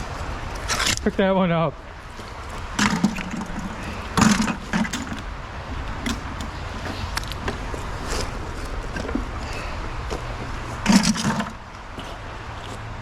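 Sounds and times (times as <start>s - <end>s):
scrap metal clanking: 2.4s - 12.3s.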